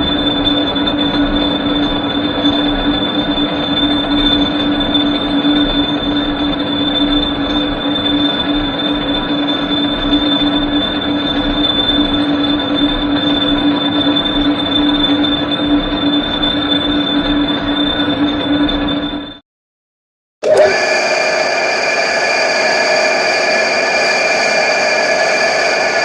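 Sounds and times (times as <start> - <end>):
lathe running: 20.4 - 26.0.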